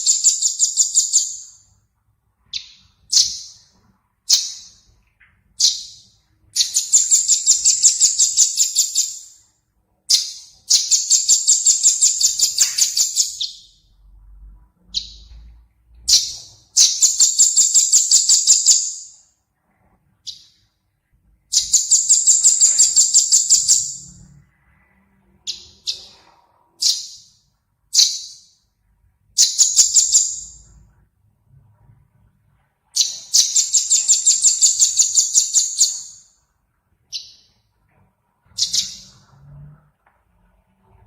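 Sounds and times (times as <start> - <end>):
songbird trills: 0.0 - 1.7, 10.1 - 13.8, 33.0 - 36.4, 38.5 - 39.2.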